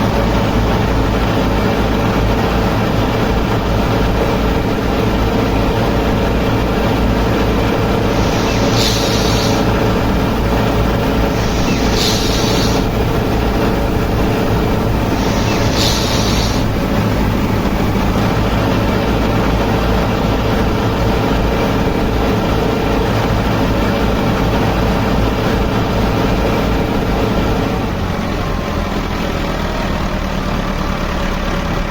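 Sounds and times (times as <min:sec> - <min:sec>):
threshing machine droning: 0:00.0 - 0:28.0
short hiss: 0:08.0 - 0:13.3, 0:14.9 - 0:17.2.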